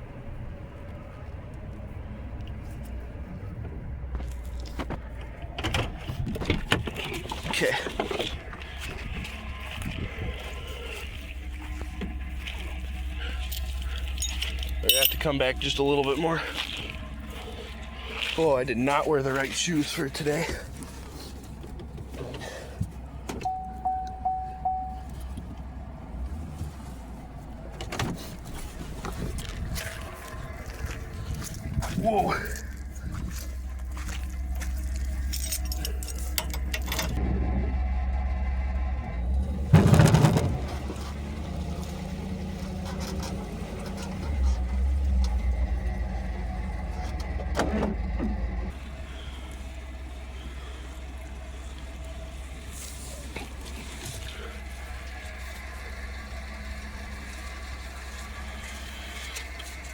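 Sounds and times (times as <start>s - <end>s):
truck engine rumbling: 0.0s - 59.9s
warning chime beeps: 23.4s - 25.3s
sharp knocks and rattles: 39.5s - 41.2s.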